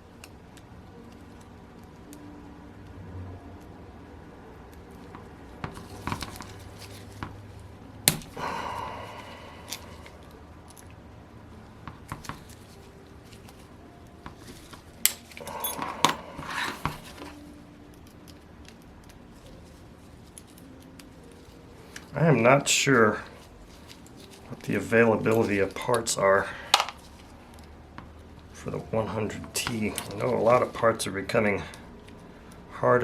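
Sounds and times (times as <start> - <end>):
metal tools clinking on workbench: 15.1 - 16.2.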